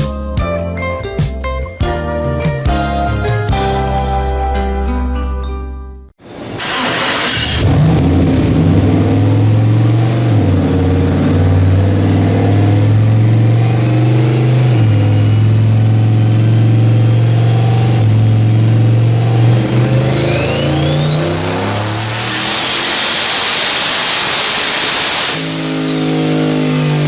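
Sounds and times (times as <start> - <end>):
car engine running loud: 6.3 - 27.0
turbo whistle: 19.9 - 25.9.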